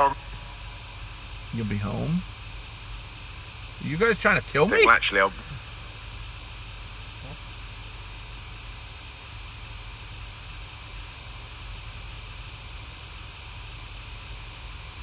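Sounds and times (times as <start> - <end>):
faint low hum: 0.0 - 6.1
steady hiss: 0.0 - 15.0.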